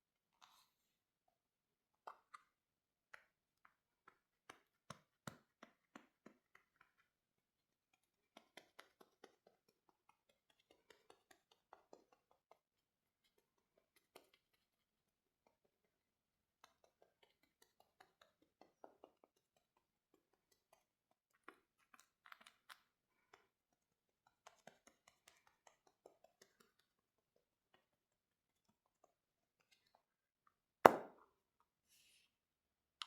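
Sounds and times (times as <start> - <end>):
makeup tools tapping and clicking: 30.9 - 31.2.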